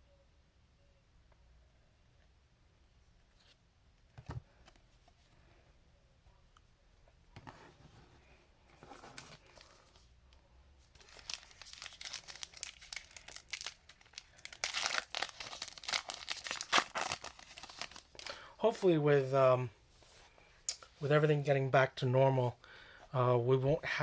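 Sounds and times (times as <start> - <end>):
plastic wrapper crinkling and tearing: 11.0 - 18.4.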